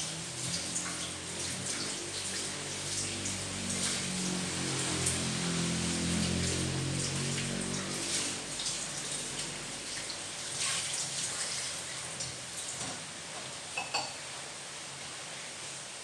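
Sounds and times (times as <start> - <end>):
rushing water: 0.0 - 16.0
kitchenware clinking: 13.8 - 14.2.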